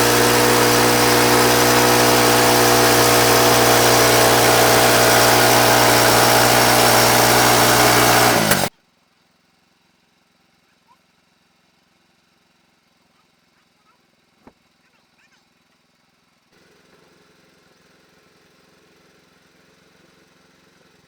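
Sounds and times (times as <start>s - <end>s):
engine running steadily: 0.0s - 8.7s, 16.6s - 21.0s.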